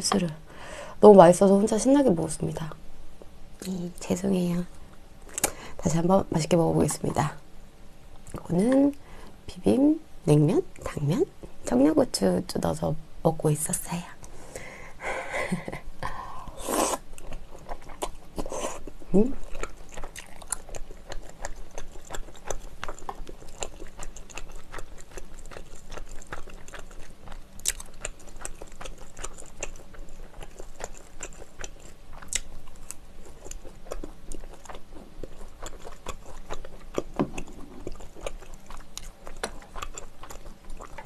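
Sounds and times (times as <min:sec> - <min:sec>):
quick mouth clicks: 0:05.3 - 0:05.6
person chewing food: 0:15.5 - 0:41.0.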